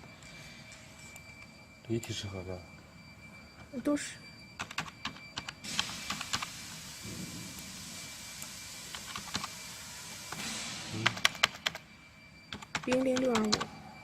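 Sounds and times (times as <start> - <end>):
steady hiss: 5.6 - 11.3.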